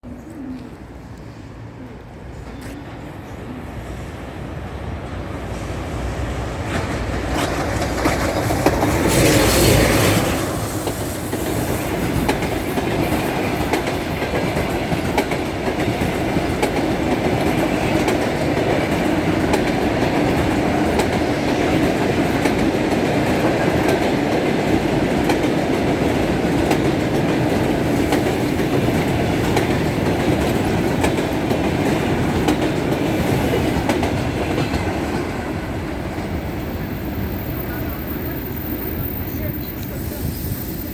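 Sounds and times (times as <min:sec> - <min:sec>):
train passing at speed: 0:00.0 - 0:40.9
wheels clicking over rail joints: 0:06.6 - 0:35.3.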